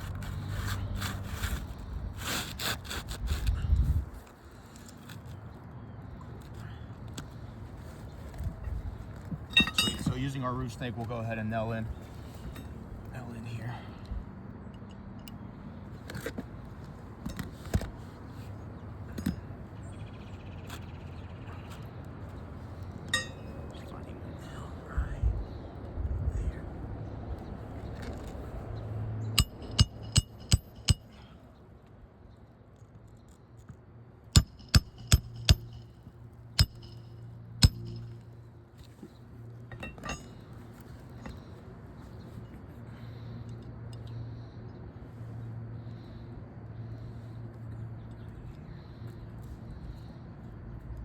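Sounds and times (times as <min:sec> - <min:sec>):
hammer striking metal: 0:09.5 - 0:10.2, 0:23.1 - 0:23.6, 0:29.4 - 0:31.3, 0:34.4 - 0:35.9, 0:36.6 - 0:38.2.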